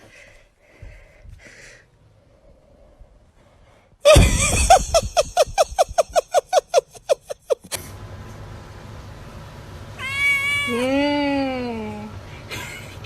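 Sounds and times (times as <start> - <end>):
sudden loud burst: 4.1 - 5.6.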